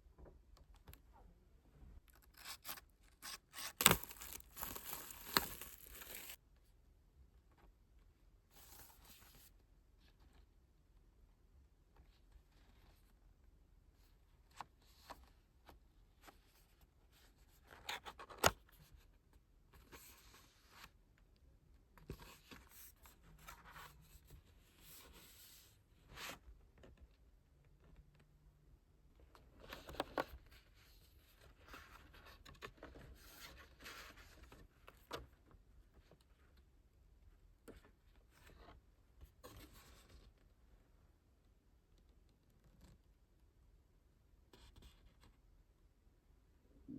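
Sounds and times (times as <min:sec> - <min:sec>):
paper and plastic rustling: 0:03.7 - 0:06.4.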